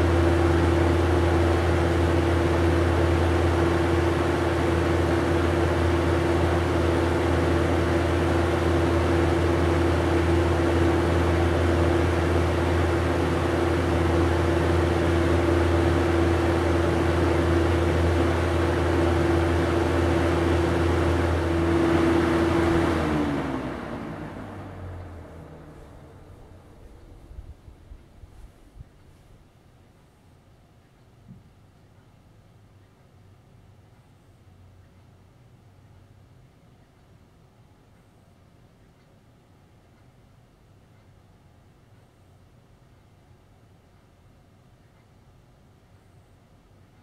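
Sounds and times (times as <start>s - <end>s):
air rushing from fan blades: 0.0s - 29.6s
box fan motor hum: 0.0s - 30.6s.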